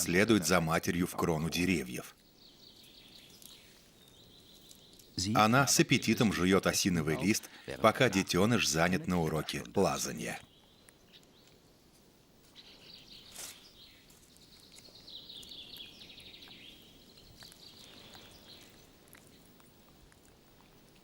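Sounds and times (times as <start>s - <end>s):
faint forest ambience: 0.0s - 21.0s
small bird twittering trills: 2.2s - 5.2s, 12.5s - 19.5s.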